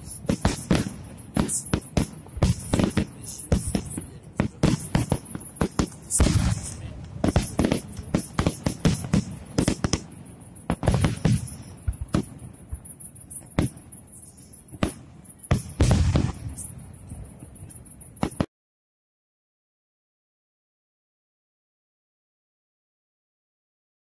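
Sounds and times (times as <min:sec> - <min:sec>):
heavy firework booms: 0:00.0 - 0:12.5, 0:14.8 - 0:16.8
firework crackles: 0:00.0 - 0:18.5
firework shells bursting: 0:00.0 - 0:18.5.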